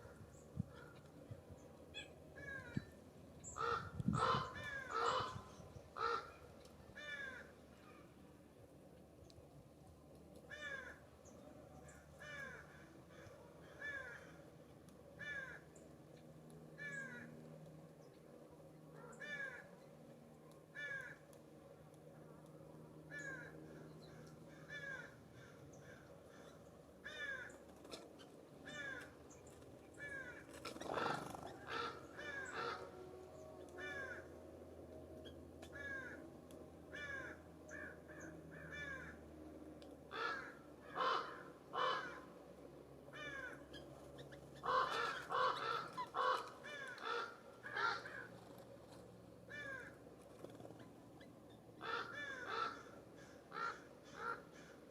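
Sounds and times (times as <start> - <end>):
crow cawing: 3.6 - 6.4, 7.0 - 7.5, 10.5 - 11.0, 12.2 - 14.4, 15.2 - 15.6, 16.8 - 17.3, 19.0 - 19.7, 20.8 - 21.2, 23.1 - 27.5, 28.7 - 29.1, 30.0 - 32.9, 33.8 - 34.3, 35.8 - 36.2, 36.9 - 39.2, 40.1 - 42.3, 43.1 - 43.6, 44.6 - 48.3, 49.5 - 50.0, 51.8 - 54.8.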